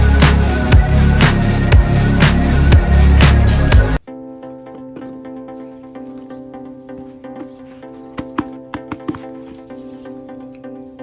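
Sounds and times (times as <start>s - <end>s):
electronic music with heavy bass: 0.0s - 4.0s.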